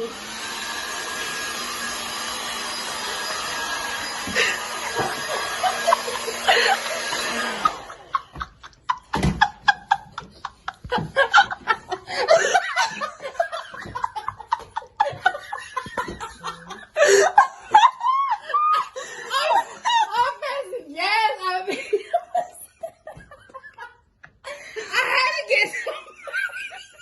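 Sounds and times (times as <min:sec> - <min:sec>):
hair dryer running: 0:00.0 - 0:18.1.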